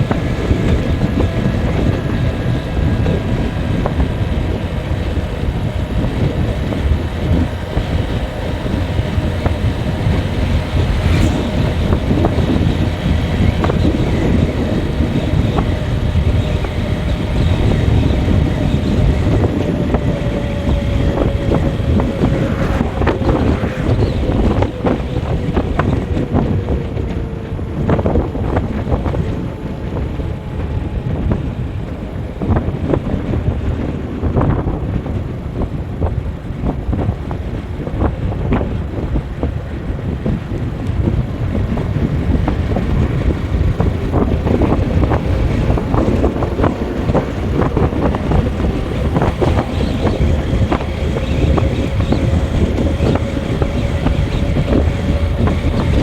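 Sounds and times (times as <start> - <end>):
wind buffeting microphone: 0.0 - 56.0
faint engine note: 6.2 - 26.4.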